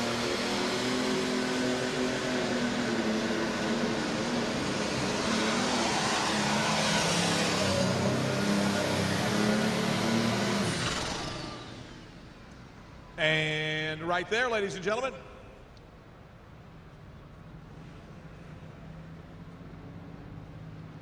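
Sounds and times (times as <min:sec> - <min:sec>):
tractor engine at full throttle: 0:00.0 - 0:12.4.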